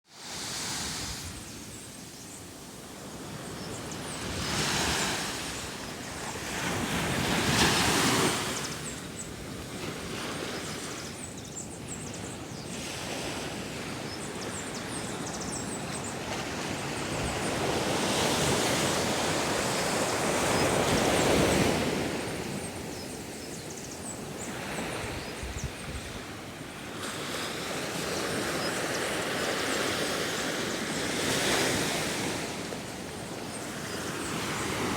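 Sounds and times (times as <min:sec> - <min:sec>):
sea waves breaking on shore: 0:02.6 - 0:15.3, 0:15.9 - 0:34.9
wind on microphone: 0:12.0 - 0:26.5.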